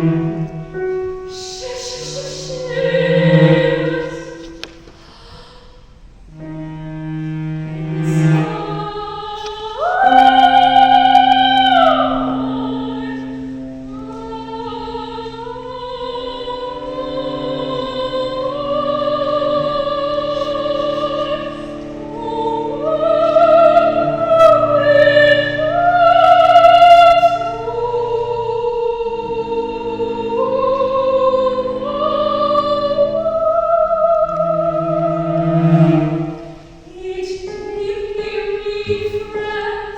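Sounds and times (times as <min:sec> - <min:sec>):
sustained low accompaniment: 0:00.0 - 0:05.0, 0:05.8 - 0:39.5
operatic voice singing: 0:01.3 - 0:04.6.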